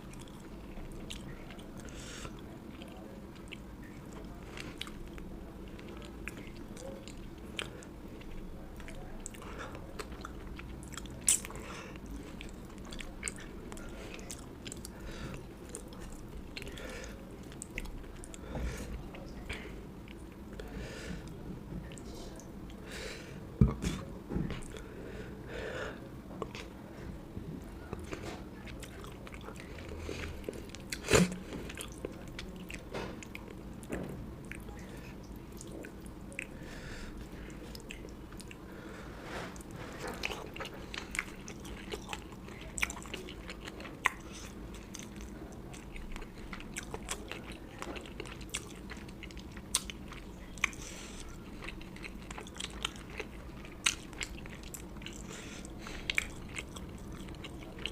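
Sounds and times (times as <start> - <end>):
person chewing and biting food: 4.6 - 16.9, 39.5 - 57.9.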